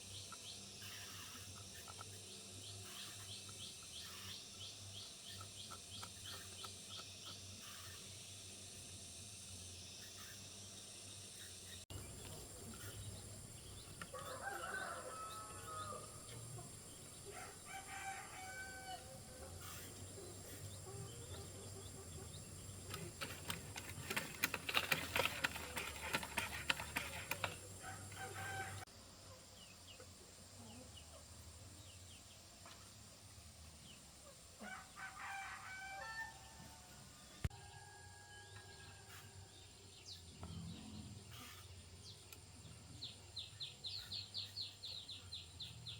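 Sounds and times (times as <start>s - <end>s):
rooster crowing: 14.1s - 16.2s, 17.3s - 19.1s, 27.8s - 28.8s, 34.6s - 36.6s, 37.6s - 39.2s.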